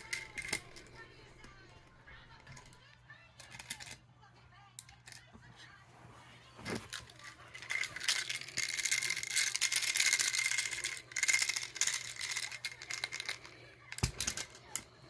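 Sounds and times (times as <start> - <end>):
dry rattling and scratching: 0.0 - 4.0, 6.3 - 14.8.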